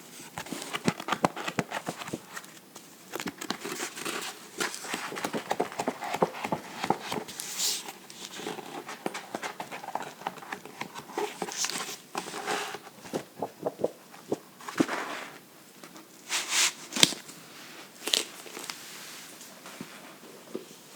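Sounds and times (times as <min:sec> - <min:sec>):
fingers tapping on books: 0:04.7 - 0:07.3.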